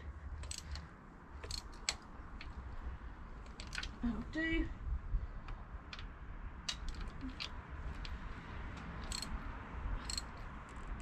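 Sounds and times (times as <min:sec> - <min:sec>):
faint wrench clicks: 0:00.4 - 0:02.6, 0:05.4 - 0:09.4, 0:10.0 - 0:10.8.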